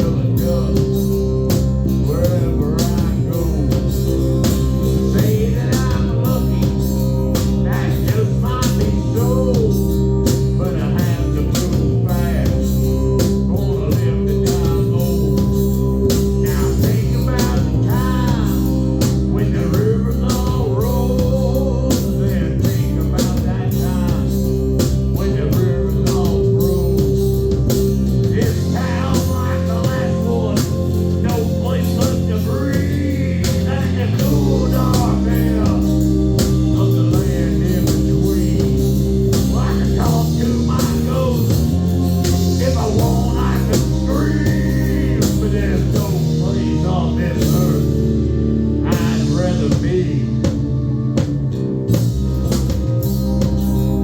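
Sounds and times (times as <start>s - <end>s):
person singing: 0.0s - 51.1s
rock band playing live: 0.0s - 54.0s.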